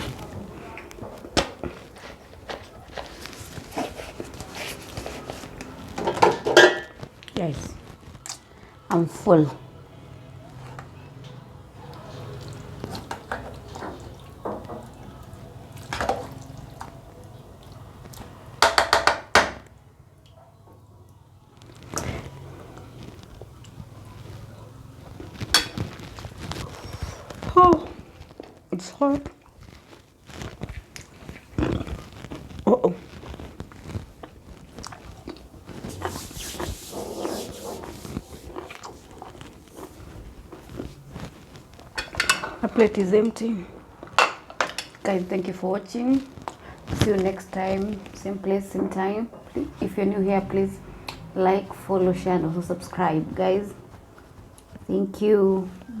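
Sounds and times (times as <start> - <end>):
mouth eating sounds: 29.3 - 41.9
slurping: 29.7 - 42.0
liquid sips: 35.7 - 40.0
spoon scraping a bowl: 35.8 - 40.0.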